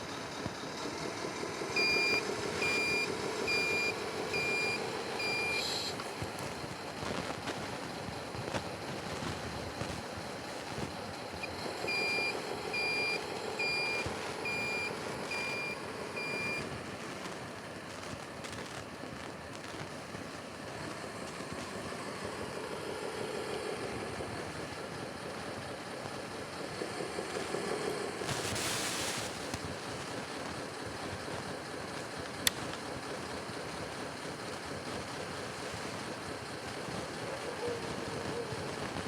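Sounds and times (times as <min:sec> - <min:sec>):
reversing warning beeps: 0:01.7 - 0:06.1, 0:11.4 - 0:16.7.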